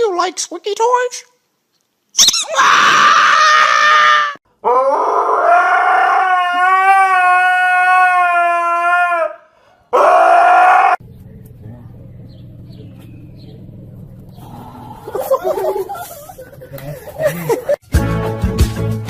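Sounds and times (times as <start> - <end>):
dog howling: 2.5 - 11.0.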